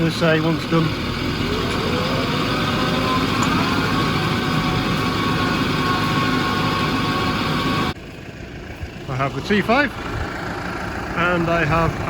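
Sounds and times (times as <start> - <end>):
tractor engine running: 0.0 - 12.0
thin whine: 1.4 - 8.0.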